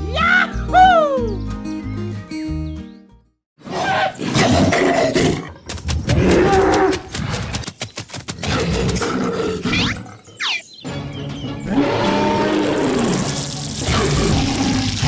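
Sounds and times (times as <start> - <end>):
rough animal-like roar: 3.6 - 7.6, 8.5 - 10.4, 11.7 - 15.0
rapid sharp clicks: 5.4 - 9.4.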